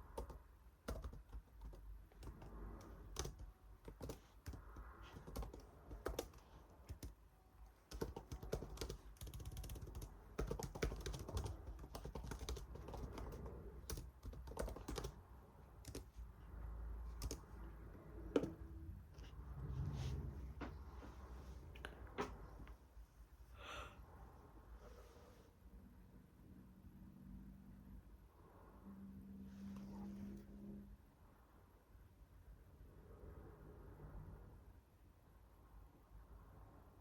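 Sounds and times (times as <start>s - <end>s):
keyboard typing: 0.0s - 7.2s, 7.8s - 15.2s, 15.8s - 16.2s, 17.1s - 17.6s, 18.2s - 18.7s.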